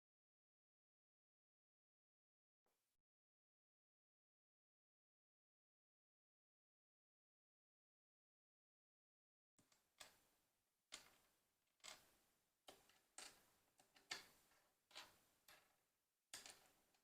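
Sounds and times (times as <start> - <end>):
plastic pieces clicking together: 12.7 - 17.0.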